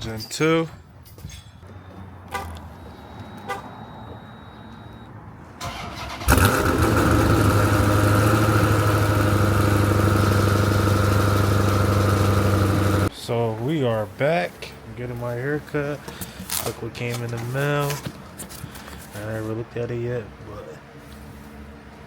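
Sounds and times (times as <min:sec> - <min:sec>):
car engine starting and idling: 0:01.7 - 0:13.1
engine cranking: 0:01.7 - 0:13.1.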